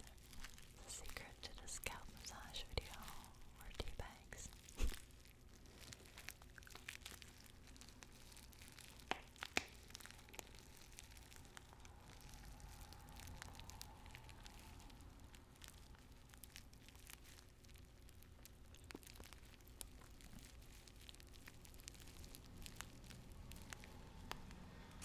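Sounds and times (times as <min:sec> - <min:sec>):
paper tea bags crinkling: 0:00.0 - 0:25.0.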